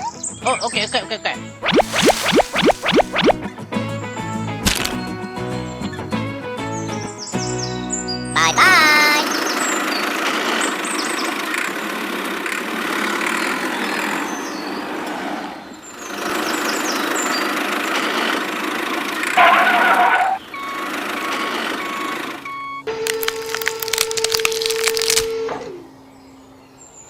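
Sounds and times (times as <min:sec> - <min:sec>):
short even beeps: 0:01.6 - 0:03.4.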